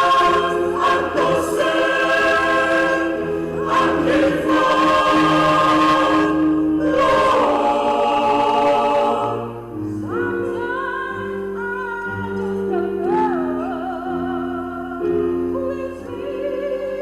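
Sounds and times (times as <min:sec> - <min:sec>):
choir singing in harmony: 0:00.0 - 0:11.5.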